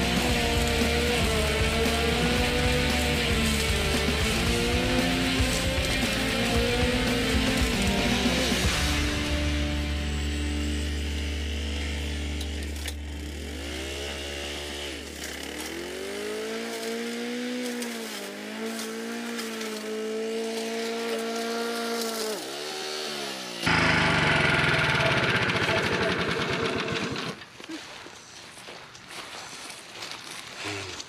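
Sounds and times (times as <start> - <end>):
brush cutter engine running: 0.0 - 27.5.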